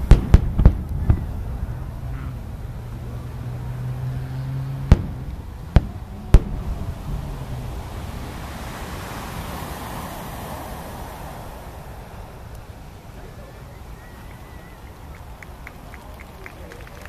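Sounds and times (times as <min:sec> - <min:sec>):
firework booms: 0:00.0 - 0:02.8, 0:04.8 - 0:08.6
distant rumbling reports: 0:00.0 - 0:17.0.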